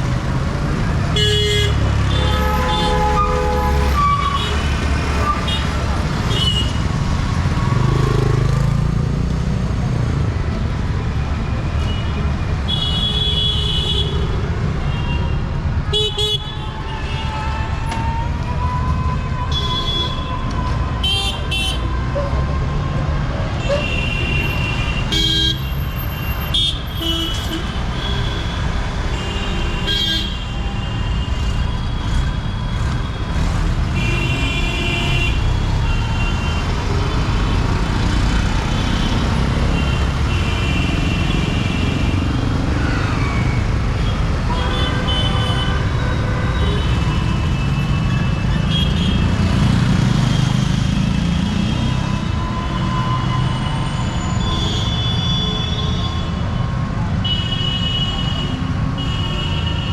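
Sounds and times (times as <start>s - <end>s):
street traffic engines: 0.0s - 59.9s
vehicle horns honking: 1.2s - 6.8s.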